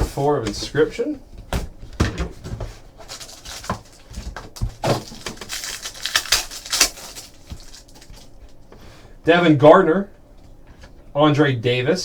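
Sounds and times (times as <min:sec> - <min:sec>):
wrapping tearing and rustling: 0:02.7 - 0:08.7.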